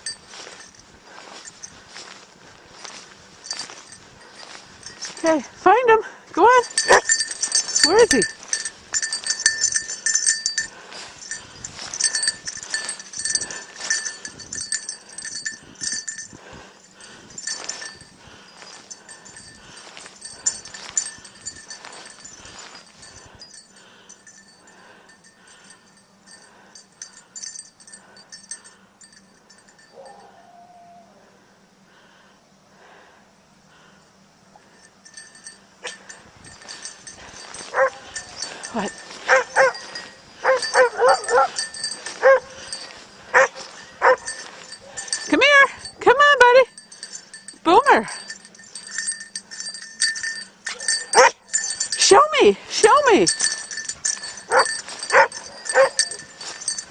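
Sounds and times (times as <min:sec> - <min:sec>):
small bell jingling: 0:00.0 - 0:30.4, 0:34.6 - 0:56.9.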